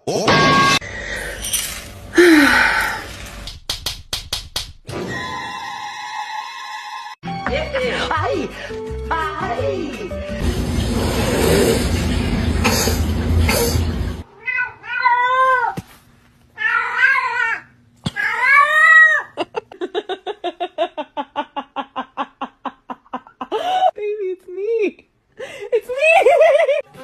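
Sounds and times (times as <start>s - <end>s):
loud noisy rush: 10.4s - 14.2s
cat yowling: 14.3s - 15.8s, 16.6s - 19.4s.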